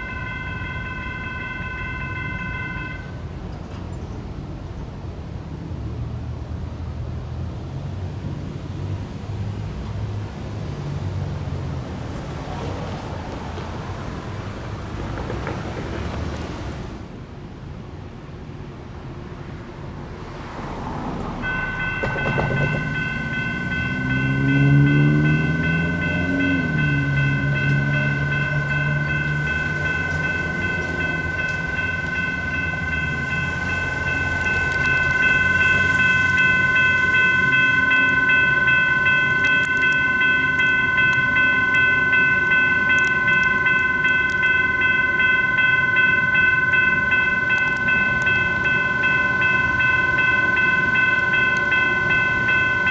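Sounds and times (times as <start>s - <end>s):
electronic crossing bell ringing: 0.0s - 3.2s, 21.4s - 52.9s
light rail train rumble: 0.0s - 52.9s
road vehicle engine passing: 20.2s - 52.9s.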